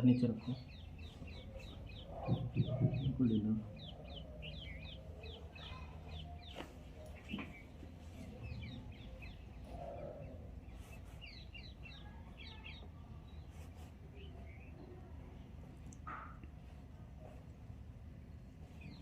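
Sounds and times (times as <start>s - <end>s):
small birds chirping: 0.0s - 19.0s
soft knock: 2.2s - 3.2s.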